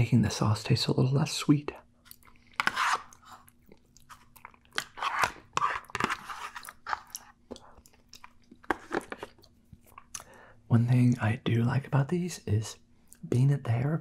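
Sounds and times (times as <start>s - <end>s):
person chewing soft food: 2.0s - 10.4s
fork scraping plastic tray: 2.6s - 3.4s, 4.8s - 7.1s.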